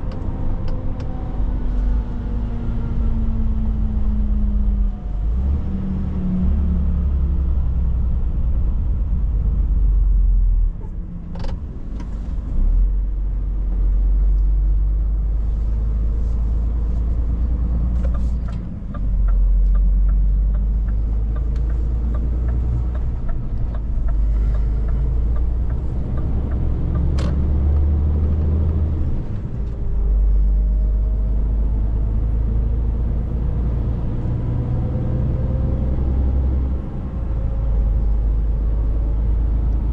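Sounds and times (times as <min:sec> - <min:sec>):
truck engine drone: 0:00.0 - 0:39.9
light ticks: 0:18.0 - 0:27.9.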